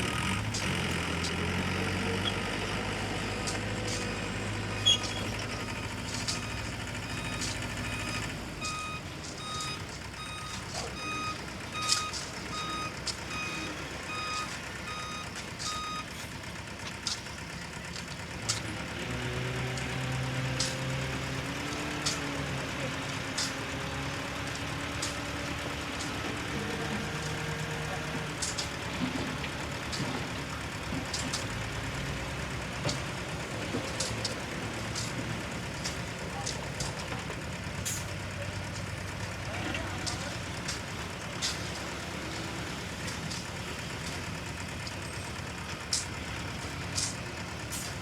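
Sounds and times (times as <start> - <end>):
diesel machinery engines: 0.0 - 48.0
reversing alarm beeping: 4.7 - 16.1.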